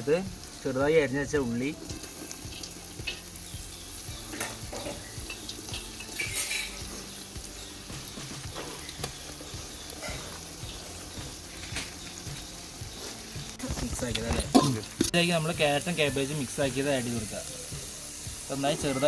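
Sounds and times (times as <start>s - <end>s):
food sizzling in oil: 0.0s - 19.0s
spoon scraping a pot: 4.3s - 6.9s.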